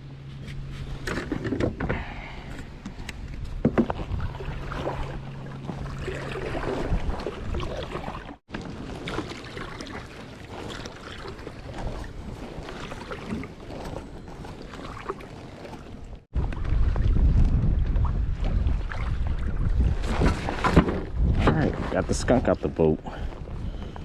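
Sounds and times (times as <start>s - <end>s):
water lapping against kayak hull: 0.7s - 24.0s
wind buffeting microphone: 1.7s - 9.1s, 15.9s - 24.0s.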